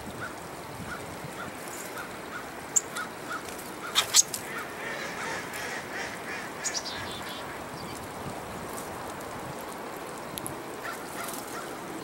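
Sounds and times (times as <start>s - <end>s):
birds calling: 0.2s - 8.0s.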